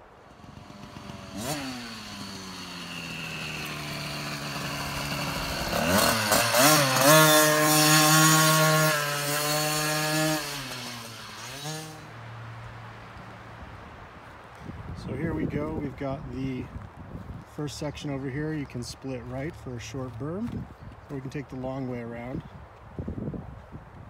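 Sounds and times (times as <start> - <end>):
dirt bike engine revving: 0.1 - 12.9.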